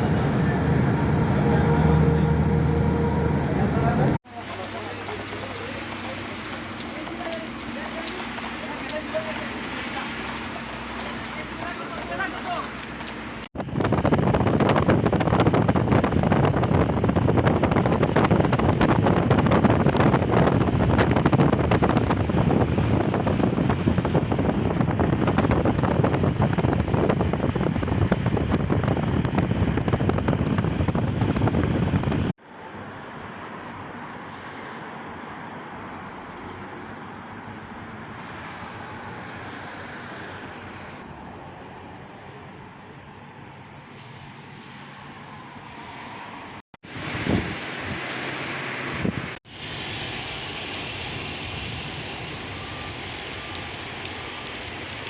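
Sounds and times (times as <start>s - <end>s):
vehicle road noise: 0.0s - 55.0s
wind buffeting microphone: 4.0s - 32.3s, 46.8s - 55.0s.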